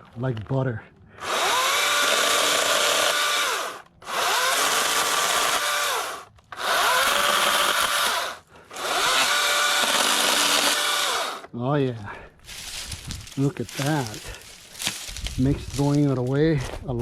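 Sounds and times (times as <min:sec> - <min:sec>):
cordless chainsaw whining: 0:01.2 - 0:11.5.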